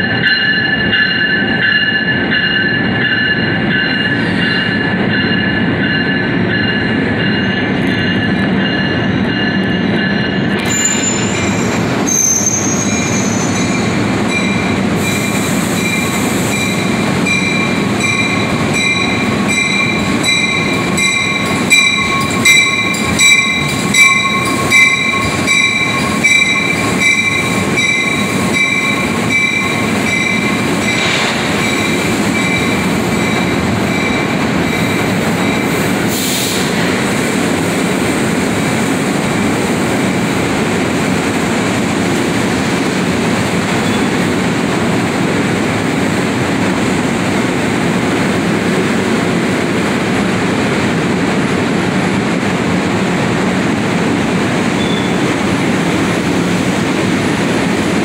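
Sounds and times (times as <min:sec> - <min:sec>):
steel wheels squealing: 0:10.2 - 0:36.8, 0:43.7 - 0:44.3, 0:54.7 - 0:55.4.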